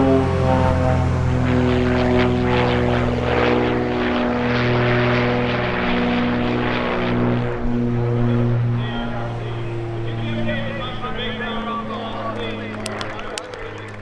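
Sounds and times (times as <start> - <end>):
twin propeller engines droning: 0.0 - 14.0.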